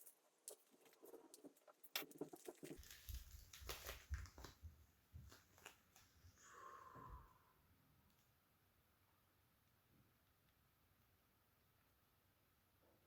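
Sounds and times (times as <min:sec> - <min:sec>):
hands handling card decks: 0:02.1 - 0:04.6.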